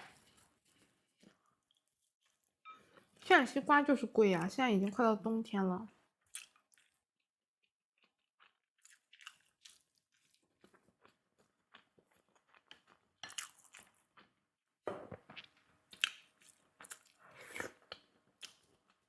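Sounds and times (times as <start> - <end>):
person biting and chewing food: 8.0 - 14.3.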